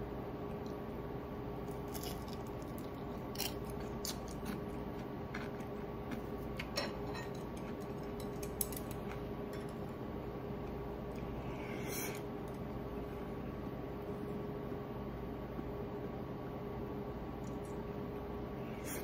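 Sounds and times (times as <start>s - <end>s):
steady low hum: 0.0s - 19.0s
crunchy fried fish being chewed: 1.6s - 9.9s.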